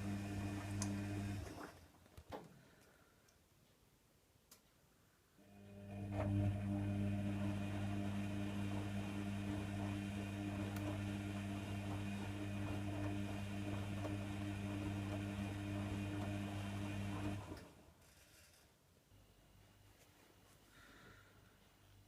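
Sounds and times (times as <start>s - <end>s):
washer dryer humming: 0.0s - 1.8s, 5.5s - 17.8s.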